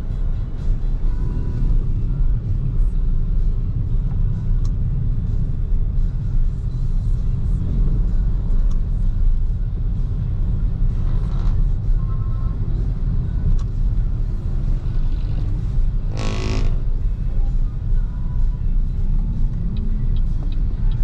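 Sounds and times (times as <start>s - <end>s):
car road rumble: 0.0s - 21.0s
vehicle horn honk: 16.1s - 16.8s.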